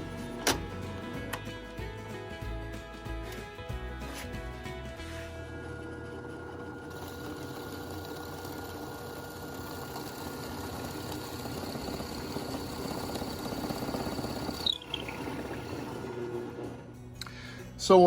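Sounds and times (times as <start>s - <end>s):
electric drill boring into wood: 5.6s - 17.0s.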